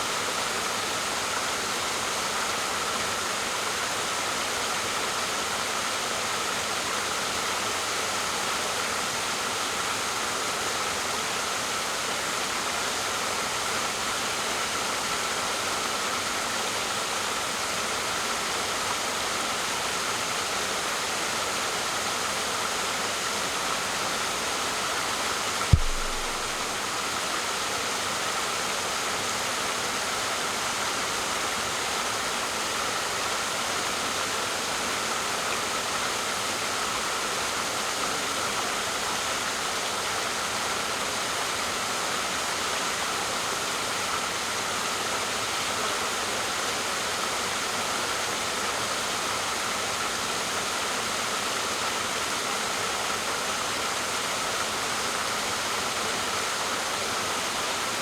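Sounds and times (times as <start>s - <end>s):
waterfall rushing: 24.6s - 27.8s
sharp thump: 25.7s - 26.7s.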